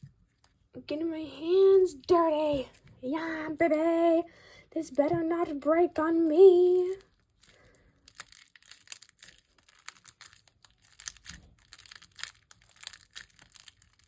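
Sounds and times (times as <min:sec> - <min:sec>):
slime sticky clicks and crackles: 0:08.1 - 0:14.0.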